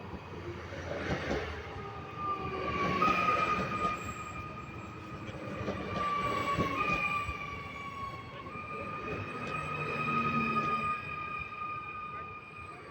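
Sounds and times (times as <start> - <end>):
train wheels squealing: 0.7 - 12.9.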